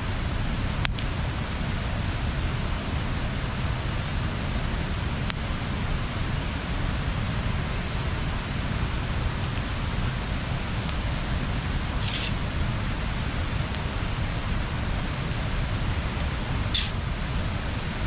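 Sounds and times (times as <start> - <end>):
bonfire hiss and rumble: 0.0 - 18.0
burning wood popping: 10.8 - 14.7, 16.2 - 17.0.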